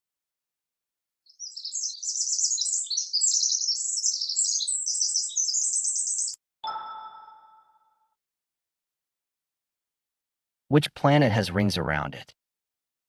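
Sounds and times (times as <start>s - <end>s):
songbird chirping and twittering: 1.3s - 7.9s
bell-like ding: 6.6s - 8.1s.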